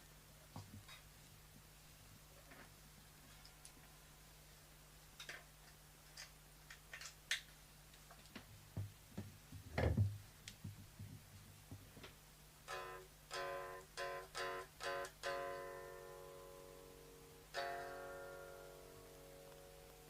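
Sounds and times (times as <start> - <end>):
electric guitar chord stabs: 12.7 - 20.0.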